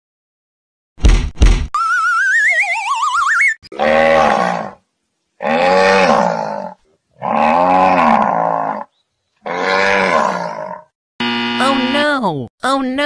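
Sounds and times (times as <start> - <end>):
wobbling cartoon whistle: 1.8 - 3.6
bull bellowing: 3.7 - 4.8, 5.4 - 10.9.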